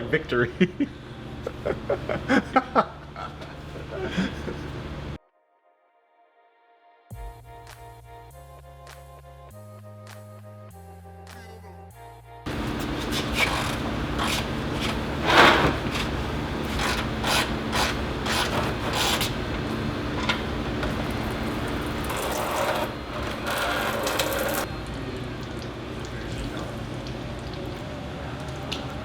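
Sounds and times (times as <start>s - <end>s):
steady low hum: 0.1s - 5.2s, 12.5s - 28.5s
ratchet and tools on metal: 12.5s - 20.9s, 22.0s - 24.7s.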